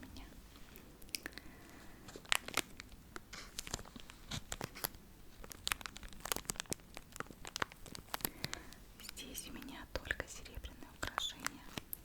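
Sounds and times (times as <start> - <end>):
crinkly material crumpling: 1.5 - 12.0.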